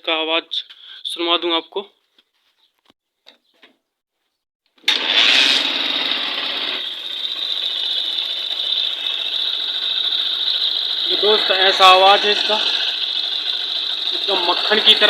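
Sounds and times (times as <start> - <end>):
motorcycle engine idling: 5.6 - 15.0.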